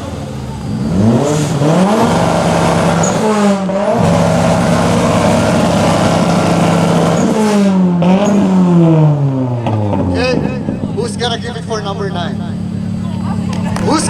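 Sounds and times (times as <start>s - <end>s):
car engine on launch limiter: 0.0s - 14.0s.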